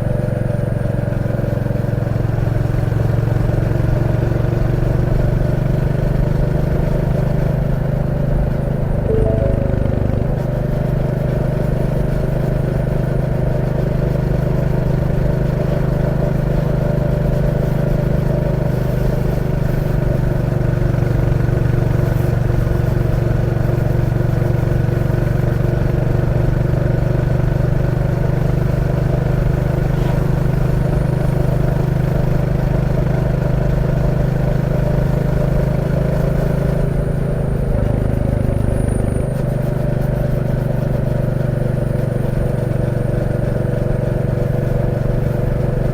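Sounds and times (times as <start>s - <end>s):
motorcycle engine running: 34.5s - 41.8s.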